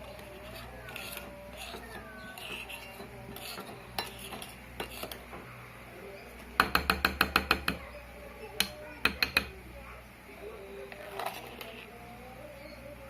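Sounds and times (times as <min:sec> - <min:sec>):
spoon clinking against a dish: 0:00.1 - 0:05.2.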